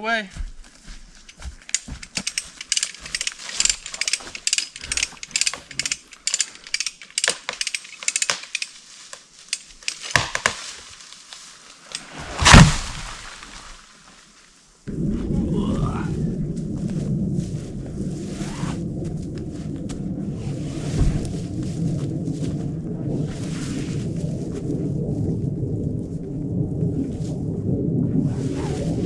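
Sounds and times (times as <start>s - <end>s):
ratchet winch pawl clicking: 1.7s - 8.8s
loud heavy thump: 12.2s - 13.3s.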